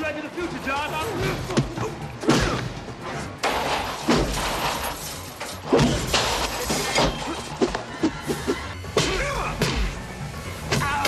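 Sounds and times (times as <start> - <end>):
action score music: 0.0 - 11.0
smashing breaking crashes: 3.4 - 7.4.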